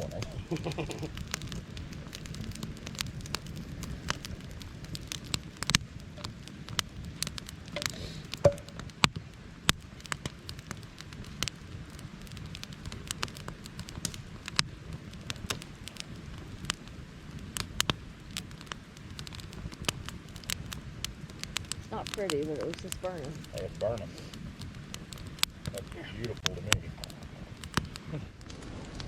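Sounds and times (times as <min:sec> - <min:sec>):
campfire crackling and popping: 0:00.0 - 0:29.0.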